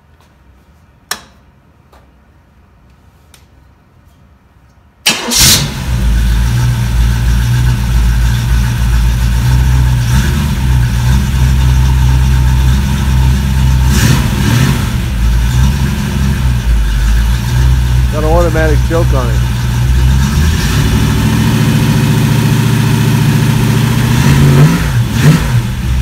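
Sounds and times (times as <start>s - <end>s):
engine starting and idling: 5.0s - 13.2s.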